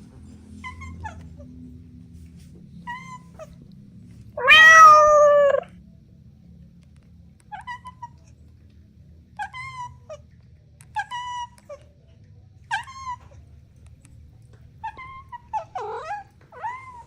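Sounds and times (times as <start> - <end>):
short high-pitched mews: 4.4 - 5.6
cat meowing: 4.4 - 5.7, 14.8 - 17.0.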